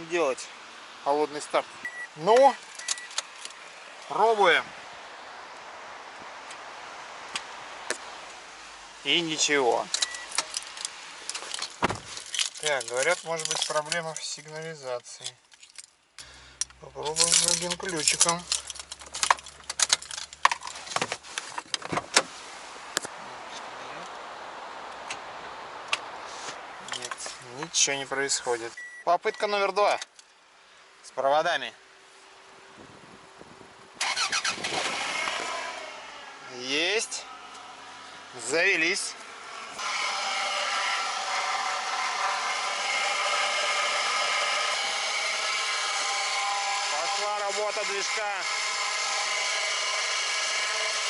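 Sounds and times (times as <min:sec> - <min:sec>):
keys jangling: 0:10.4 - 0:14.6, 0:17.1 - 0:20.8.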